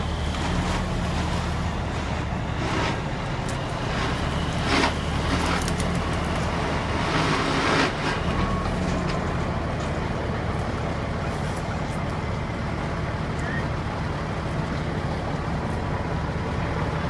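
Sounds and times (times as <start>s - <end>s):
diesel locomotive engine rumble: 0.0s - 17.0s.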